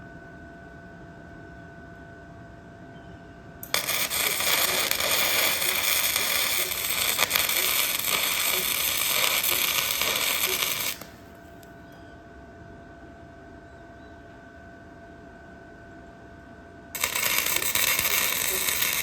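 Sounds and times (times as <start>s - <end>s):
welding arc crackling: 3.6s - 11.3s, 17.0s - 19.0s.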